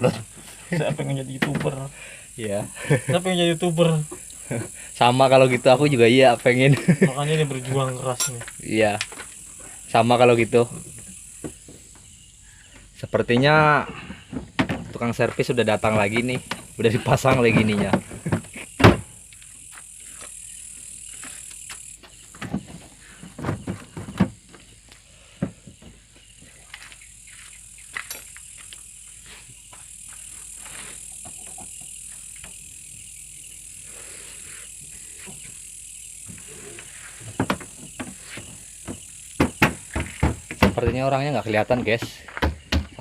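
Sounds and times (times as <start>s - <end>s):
steady high-pitched hiss: 0.0s - 43.0s.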